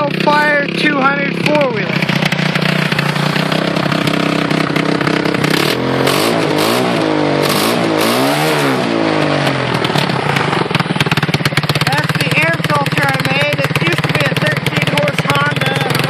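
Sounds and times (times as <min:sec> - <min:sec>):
quad bike engine idling and revving: 0:00.0 - 0:16.0.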